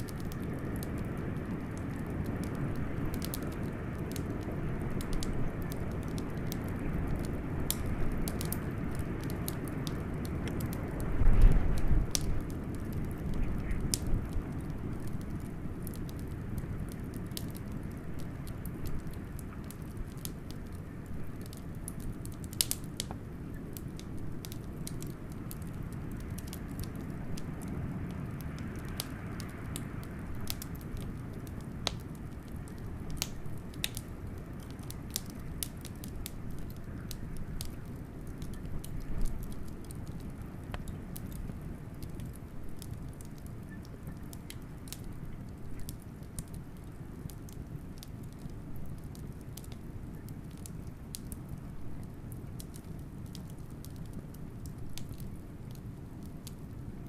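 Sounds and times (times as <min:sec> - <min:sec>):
blizzard wind rumble: 0:00.0 - 0:22.6
wood fire crackling and popping: 0:00.0 - 0:57.0.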